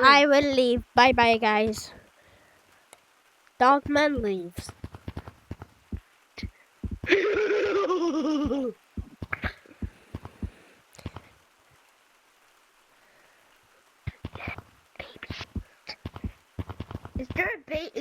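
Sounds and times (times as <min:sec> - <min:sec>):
toys clicking and tapping: 0:00.4 - 0:02.0, 0:03.7 - 0:07.2, 0:14.1 - 0:17.5.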